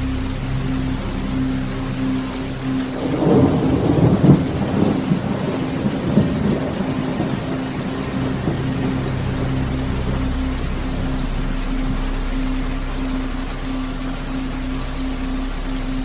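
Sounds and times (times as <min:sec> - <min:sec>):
rain falling: 0:00.0 - 0:16.0
thunder rolling: 0:02.9 - 0:12.1.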